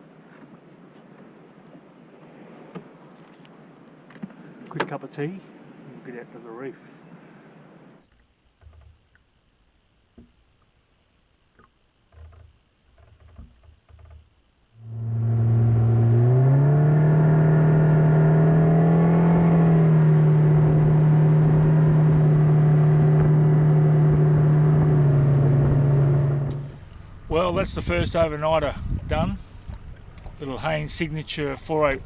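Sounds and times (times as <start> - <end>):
wind: 0.0 - 32.0
faint clicks and knocks: 8.0 - 9.3, 11.5 - 14.3
water noise: 11.5 - 32.0
outboard motor running: 14.8 - 27.3.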